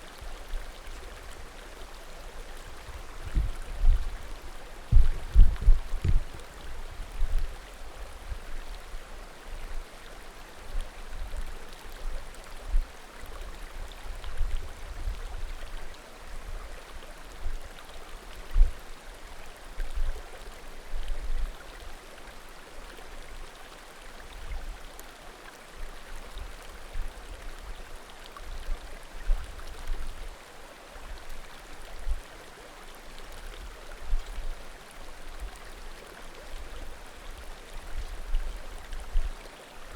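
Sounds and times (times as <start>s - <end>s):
low rumbling thumps: 4.9s - 6.4s.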